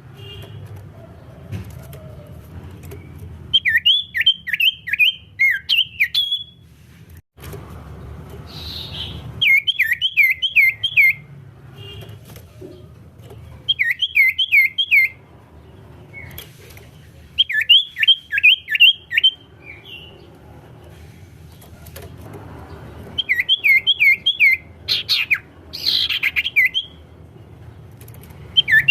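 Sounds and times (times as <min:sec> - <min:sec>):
bird singing whistled notes: 0:03.5 - 0:06.6, 0:08.5 - 0:11.2, 0:13.7 - 0:15.2, 0:17.4 - 0:20.1, 0:23.2 - 0:27.0, 0:28.5 - 0:28.9.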